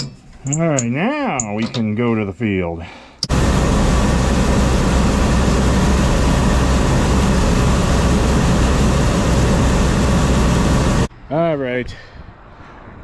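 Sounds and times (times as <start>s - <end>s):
combine harvester running: 3.2s - 11.1s.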